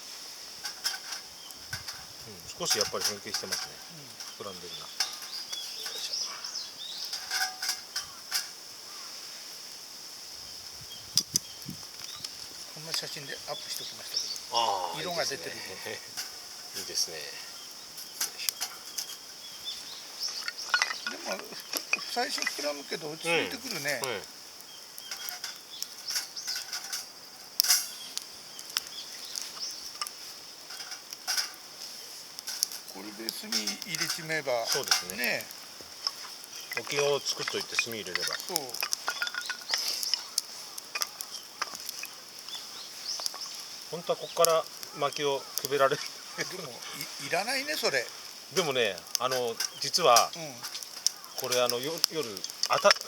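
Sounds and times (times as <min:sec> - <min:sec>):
high-pitched insect hum: 0:00.0 - 0:53.0
sharp pops of fire: 0:00.0 - 0:53.0
wood fire crackling: 0:00.0 - 0:53.0
bird chirps: 0:03.8 - 0:09.2, 0:13.2 - 0:27.0.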